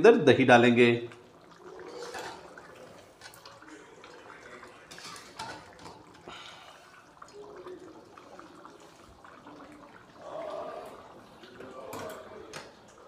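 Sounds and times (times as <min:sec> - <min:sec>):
metal spatula scraping a pan: 0:01.9 - 0:02.5, 0:04.9 - 0:05.7.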